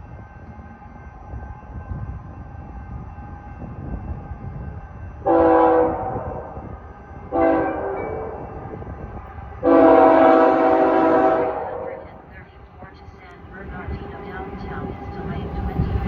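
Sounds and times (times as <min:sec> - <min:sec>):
train rumbling: 0:00.0 - 0:16.0
train horn blasts: 0:05.2 - 0:06.7, 0:07.3 - 0:08.8, 0:09.6 - 0:12.4.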